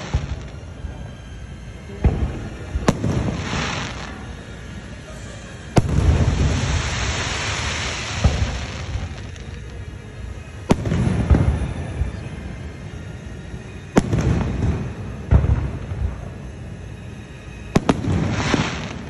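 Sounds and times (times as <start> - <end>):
rolling rumble and crackle: 0.0 - 19.0
firework shells bursting: 5.6 - 12.4.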